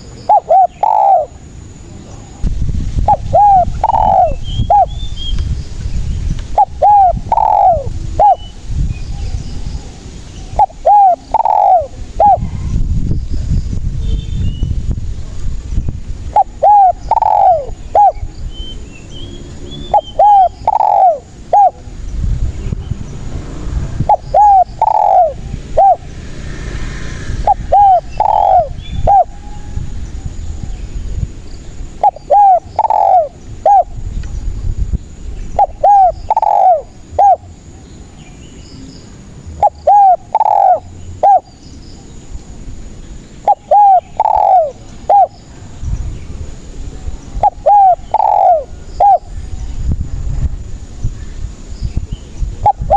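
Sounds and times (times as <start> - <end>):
dove cooing: 0.0 - 1.5, 3.0 - 5.1, 6.5 - 8.6, 10.5 - 12.7, 16.3 - 18.3, 19.8 - 22.0, 24.0 - 26.2, 27.4 - 29.7, 32.0 - 34.0, 35.6 - 37.7, 39.6 - 41.6, 43.4 - 45.4, 47.4 - 49.5, 52.6 - 52.9.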